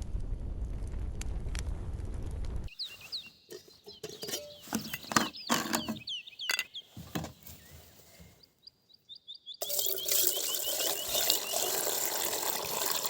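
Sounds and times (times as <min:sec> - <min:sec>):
small bird calling: 0:02.7 - 0:11.8.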